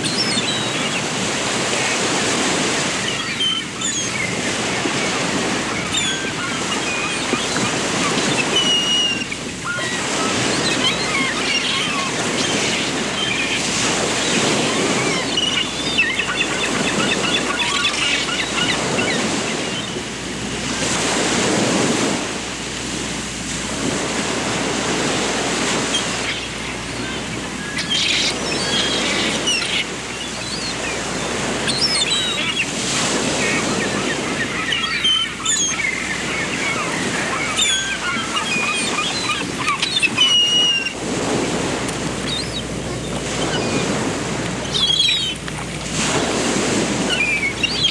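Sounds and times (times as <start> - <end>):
small birds chirping: 0.0 - 1.1, 26.0 - 40.9, 41.8 - 45.5.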